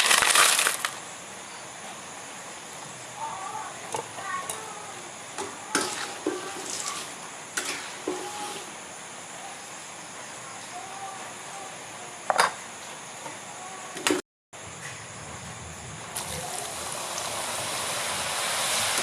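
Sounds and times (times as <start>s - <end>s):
steady hiss: 0.0s - 19.0s
utensils scraping cookware: 5.8s - 8.7s.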